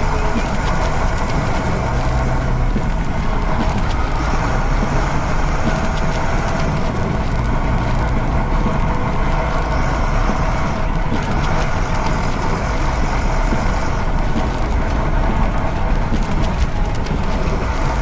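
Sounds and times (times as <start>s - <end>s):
heavy vehicle engine rumbling: 0.0s - 18.0s.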